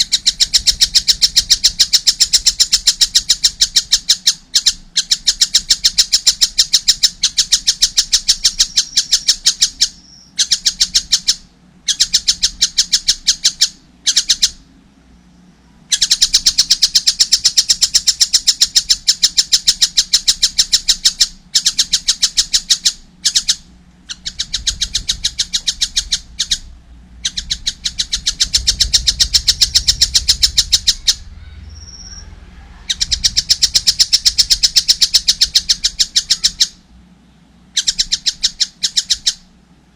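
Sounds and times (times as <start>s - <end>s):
kingfisher calling: 15.9s - 36.8s.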